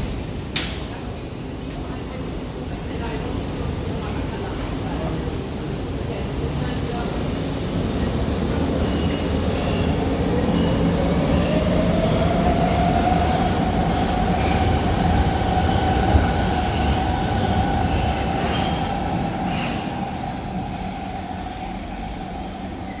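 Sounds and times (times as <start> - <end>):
train wheels rumbling on rails: 6.6 - 23.0.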